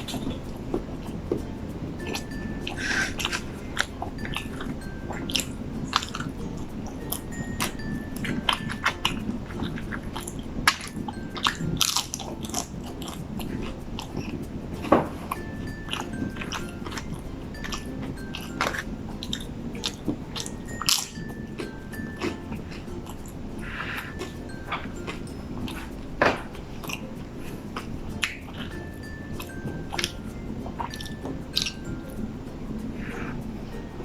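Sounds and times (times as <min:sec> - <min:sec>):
person chewing crunchy food: 0:02.0 - 0:14.4, 0:15.1 - 0:28.8, 0:29.4 - 0:31.9
wet mouth clicks: 0:16.0 - 0:21.2.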